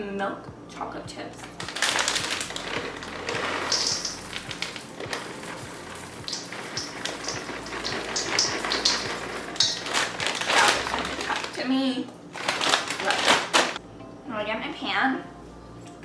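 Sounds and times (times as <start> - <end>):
chocolate chips clicking in container: 1.8 - 5.3.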